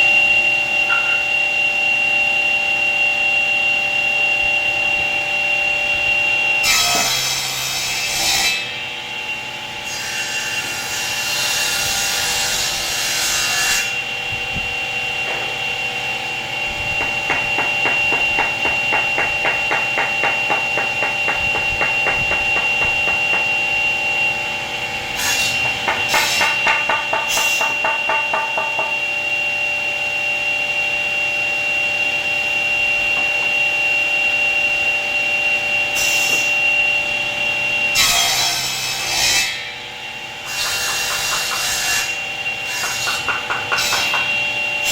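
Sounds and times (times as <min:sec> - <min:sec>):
woodworking machine whining: 0:06.2 - 0:44.9
machine cutting wood: 0:15.2 - 0:23.8, 0:25.1 - 0:29.2, 0:37.9 - 0:44.9.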